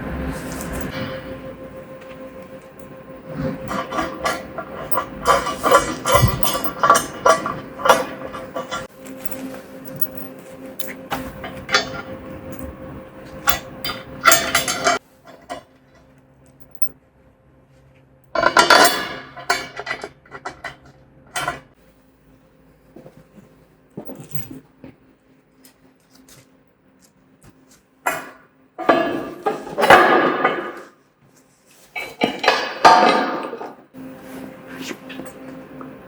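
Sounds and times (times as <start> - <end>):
metal clanks and rattles: 0.0 - 15.7, 18.4 - 21.8, 28.1 - 31.0, 32.0 - 34.1
loud metal clatter: 2.7 - 8.9, 11.1 - 15.0.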